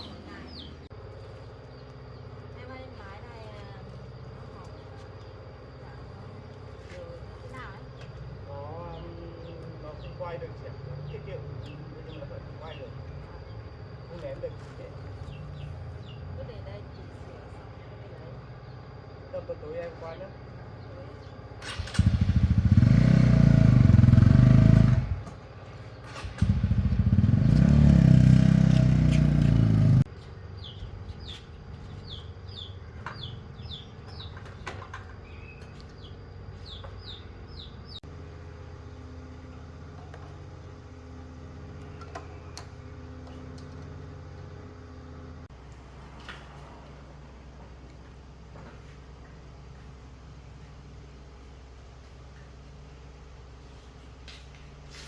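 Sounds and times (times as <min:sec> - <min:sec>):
bird chirping: 0:00.0 - 0:00.9, 0:07.6 - 0:17.5, 0:30.2 - 0:38.1
motorcycle engine running loudly: 0:21.6 - 0:25.4, 0:26.0 - 0:30.1.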